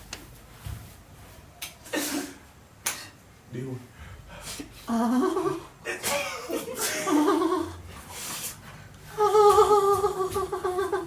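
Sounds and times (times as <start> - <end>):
people laughing: 4.9 - 7.8, 9.2 - 11.0
person making wavering vocal noises: 9.1 - 11.0.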